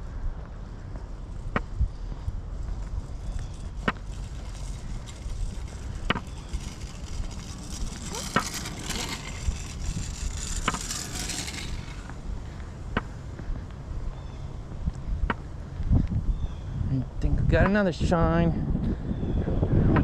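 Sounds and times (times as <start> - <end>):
footsteps on paved trail: 0.1 - 15.9
low rumble: 2.3 - 13.0.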